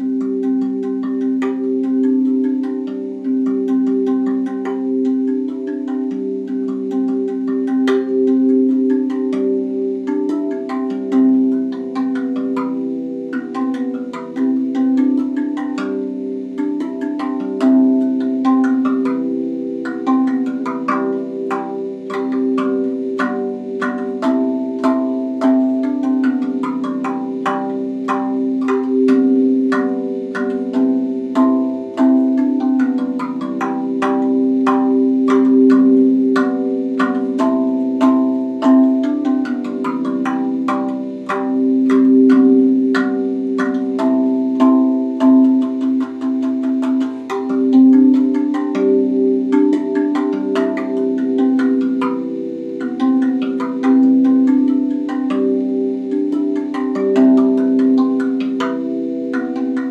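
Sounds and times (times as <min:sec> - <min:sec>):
steel tongue drum notes: 0:00.0 - 0:59.9.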